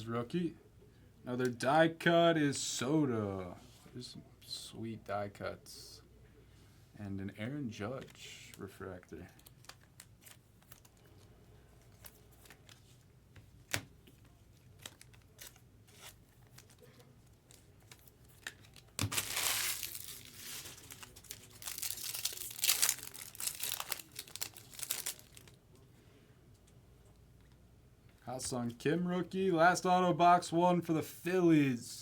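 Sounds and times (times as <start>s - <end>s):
foil wrapper tearing and crinkling: 14.8s - 25.6s.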